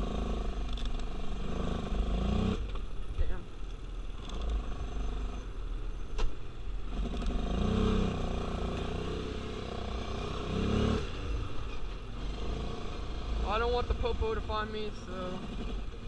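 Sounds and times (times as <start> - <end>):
atv engine revving: 0.0 - 2.8, 6.8 - 13.9, 14.9 - 16.0.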